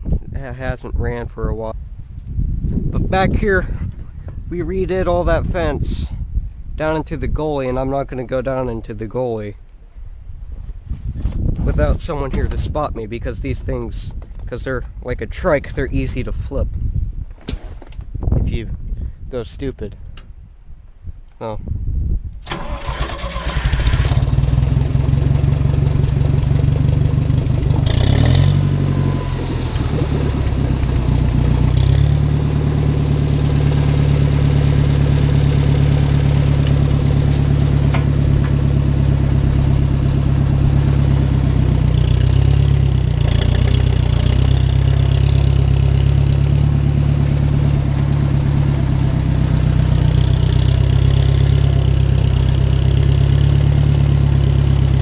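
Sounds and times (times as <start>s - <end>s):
tractor engine running: 22.4s - 55.0s.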